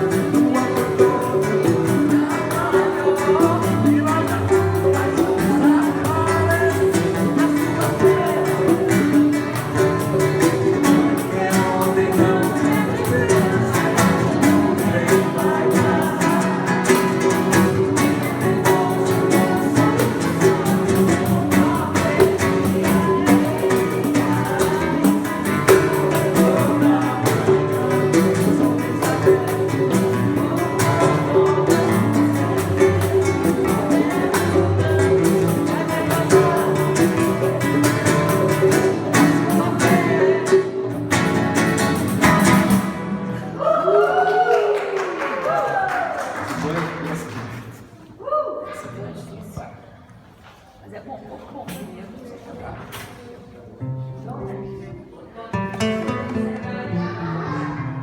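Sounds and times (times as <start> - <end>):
hand percussion: 0.0 - 43.5
person singing: 0.0 - 46.1
acoustic guitar: 0.0 - 58.0.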